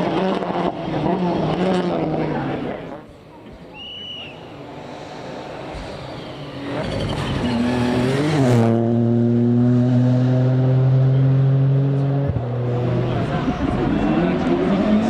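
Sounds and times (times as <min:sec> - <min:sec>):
rally car engine approaching: 0:03.8 - 0:15.0.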